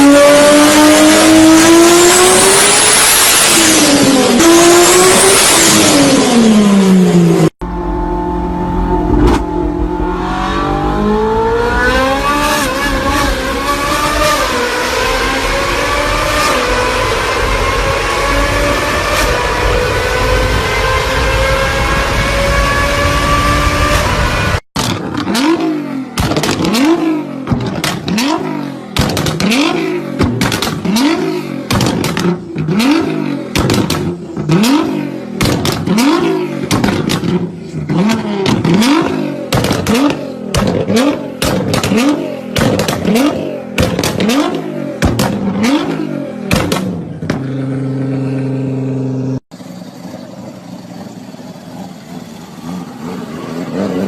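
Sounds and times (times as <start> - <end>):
car engine revving: 0.0 - 54.0
exhaust crackling pops: 26.2 - 26.8, 29.0 - 29.6, 30.2 - 31.0, 31.7 - 32.7, 33.5 - 34.2, 35.4 - 36.0, 36.6 - 45.6, 46.5 - 48.1.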